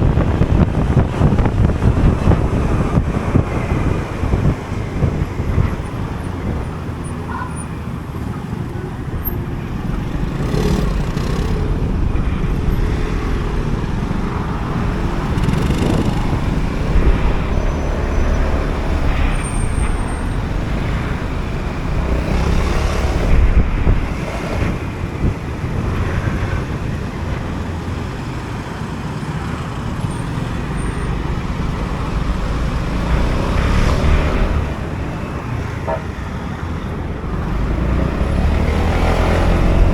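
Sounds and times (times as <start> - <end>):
road and traffic noise: 0.0 - 39.9
scooter engine running: 13.5 - 17.4.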